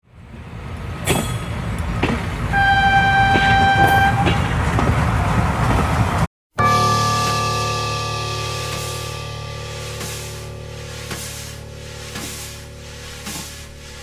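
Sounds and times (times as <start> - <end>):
train rumbling on track: 0.1 - 6.3
wheels clicking over rail joints: 0.7 - 6.0, 8.6 - 14.0
train horn: 2.5 - 4.6, 6.6 - 12.1.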